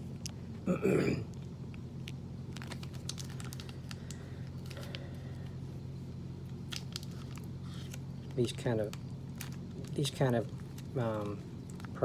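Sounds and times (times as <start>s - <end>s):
steady low hum: 0.0s - 12.0s
plastic wrapper crinkling: 2.5s - 5.6s, 6.5s - 12.0s.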